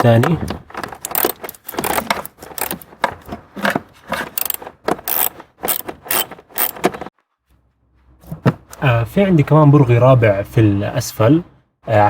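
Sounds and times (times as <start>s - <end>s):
metallic clicks and scrapes: 0.8s - 7.1s.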